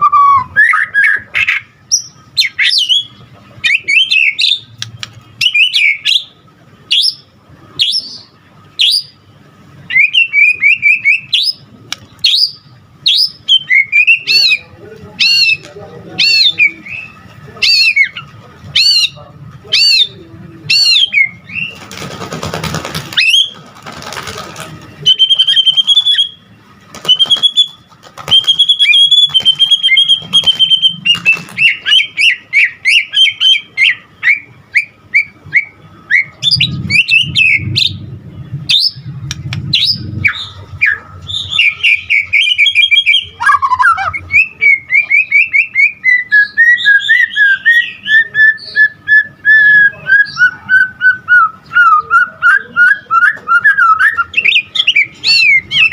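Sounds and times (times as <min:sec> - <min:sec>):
songbird whistling and trilling: 0:00.0 - 0:04.8, 0:05.4 - 0:06.3, 0:06.9 - 0:09.2, 0:09.9 - 0:11.6, 0:12.2 - 0:18.2, 0:25.0 - 0:38.0, 0:38.7 - 0:39.1, 0:39.7 - 0:55.9.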